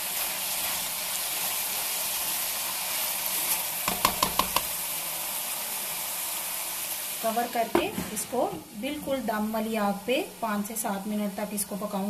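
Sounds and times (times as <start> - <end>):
chicken sizzling in oil: 0.0 - 12.0
spatula stirring in wok: 3.0 - 4.8
ringing knocks: 3.9 - 4.7.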